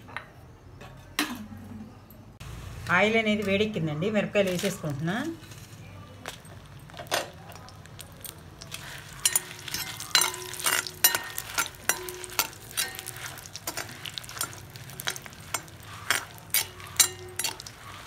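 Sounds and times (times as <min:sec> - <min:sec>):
chillies sizzling in hot oil: 0:02.4 - 0:18.0
spoon scraping and knocking pan: 0:04.4 - 0:18.0.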